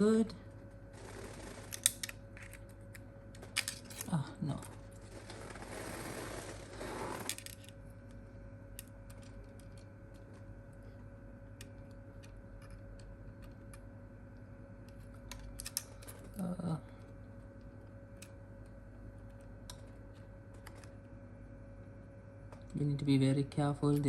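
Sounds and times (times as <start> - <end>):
faint steady hum: 0.0 - 24.0
rustling scrape: 5.0 - 7.4.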